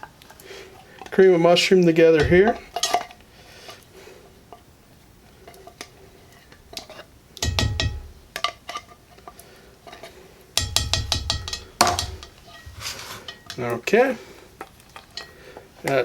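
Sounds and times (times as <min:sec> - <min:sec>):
cans knocking with dull thumps: 0:06.6 - 0:08.6, 0:10.6 - 0:12.5
metal cans clicking: 0:10.6 - 0:13.8.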